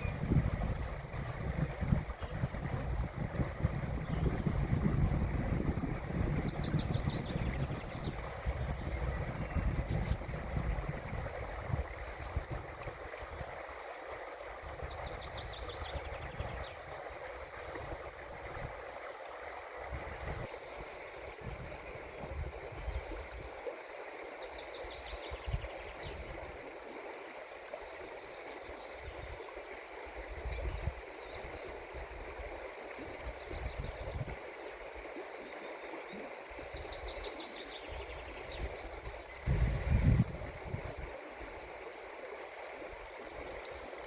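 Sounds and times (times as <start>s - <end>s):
wind gusts on microphone: 0.0s - 13.6s, 14.6s - 17.0s, 19.8s - 20.6s, 21.2s - 23.5s, 38.0s - 41.1s.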